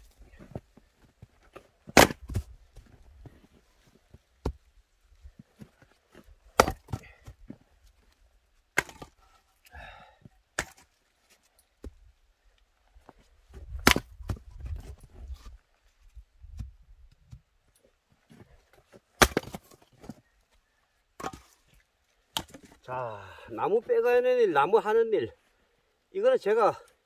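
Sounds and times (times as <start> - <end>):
axe chopping strikes: 1.9 - 2.5, 6.5 - 7.3, 8.7 - 9.2, 10.6 - 10.9, 13.8 - 14.4, 19.2 - 19.8
wood cracking as it splits: 1.9 - 2.5, 19.2 - 19.8.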